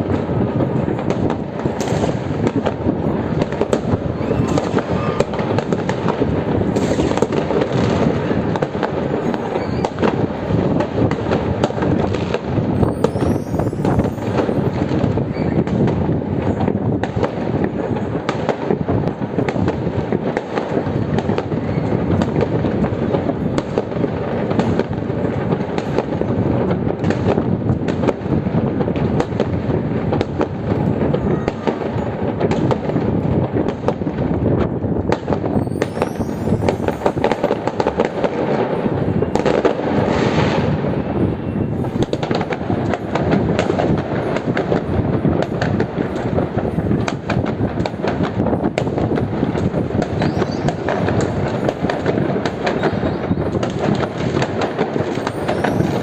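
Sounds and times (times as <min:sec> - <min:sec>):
firework high rising whistle: 0:00.0 - 0:18.1, 0:34.7 - 0:47.5, 0:48.2 - 0:56.0
fireworks bangs and crackling: 0:00.0 - 0:56.0.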